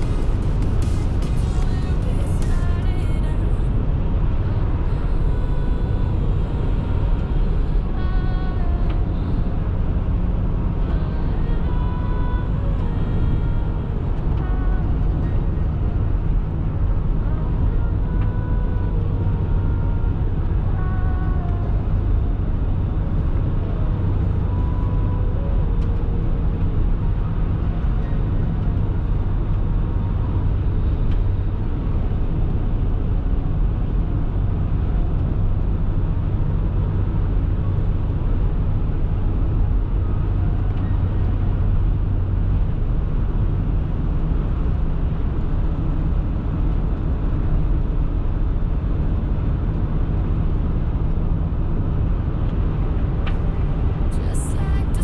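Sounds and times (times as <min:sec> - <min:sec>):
car driving on highway: 0:00.0 - 0:55.0.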